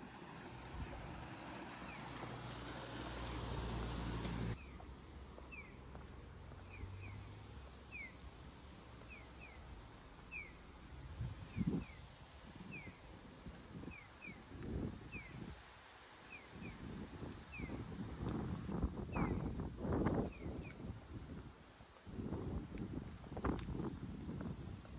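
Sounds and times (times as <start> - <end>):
water wheel splashing: 0.0 - 4.6
pedestrian crossing chirps: 0.0 - 4.8.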